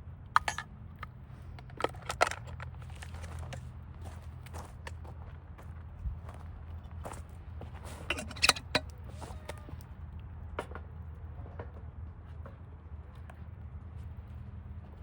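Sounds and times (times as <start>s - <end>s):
sharp clicks and knocks: 0.4s - 3.6s.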